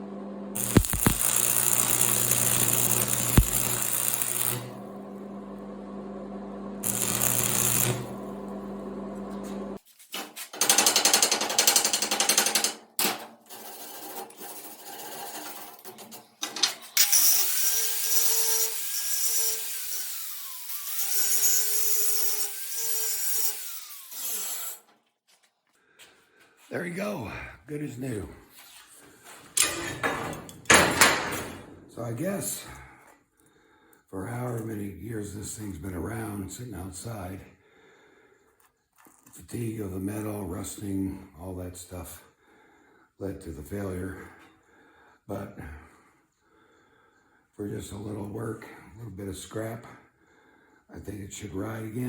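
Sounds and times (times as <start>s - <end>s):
power tool motor whine on metal: 0.5s - 9.8s.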